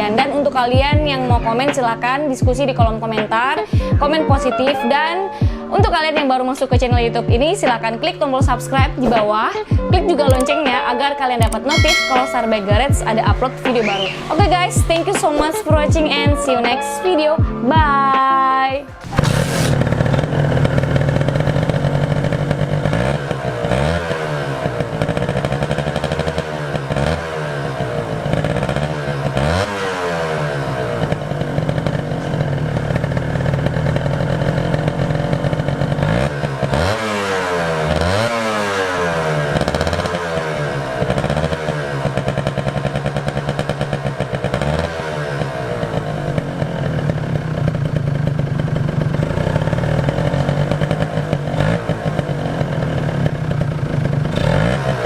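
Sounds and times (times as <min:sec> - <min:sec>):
motorcycle engine revving: 0:19.0 - 0:55.0.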